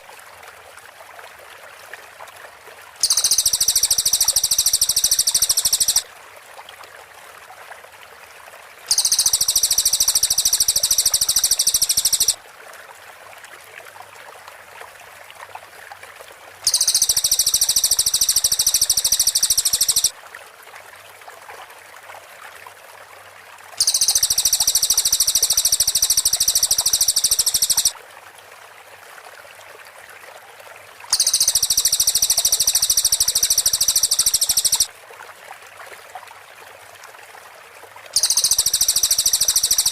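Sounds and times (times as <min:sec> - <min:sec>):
faint steady hiss: 0:00.0 - 0:07.1, 0:08.2 - 0:12.4, 0:16.3 - 0:21.6, 0:23.1 - 0:30.0, 0:30.9 - 0:35.1, 0:36.1 - 0:39.9
bird song rapid trills: 0:03.0 - 0:06.0, 0:08.9 - 0:12.4, 0:16.7 - 0:20.1, 0:23.8 - 0:27.9, 0:31.1 - 0:34.9, 0:38.2 - 0:39.9.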